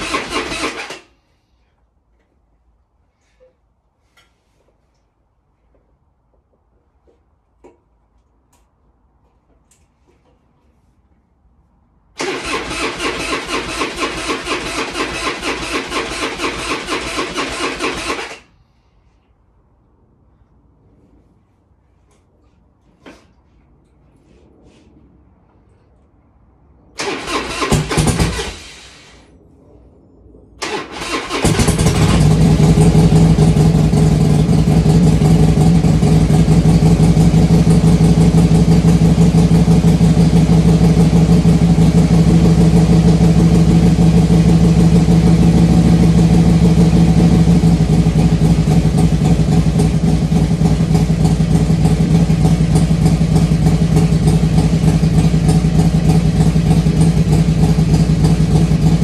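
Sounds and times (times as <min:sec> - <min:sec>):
motorcycle engine starting and idling: 0:00.0 - 0:01.4, 0:12.1 - 0:18.7, 0:26.9 - 0:29.2, 0:30.6 - 0:59.0.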